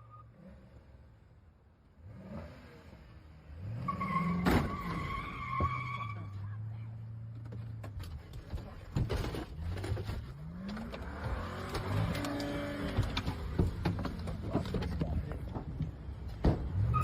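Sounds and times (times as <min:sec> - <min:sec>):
tyre and road noise: 0:00.0 - 0:17.0
car engine revving: 0:09.4 - 0:17.0.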